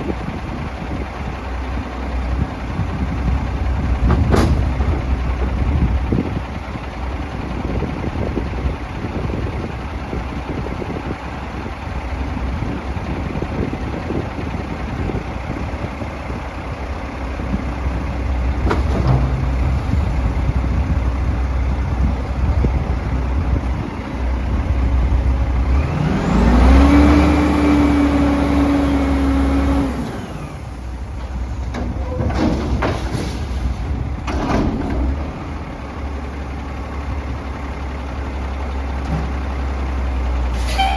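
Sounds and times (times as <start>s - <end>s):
garbage truck engine revving: 14.7s - 40.9s.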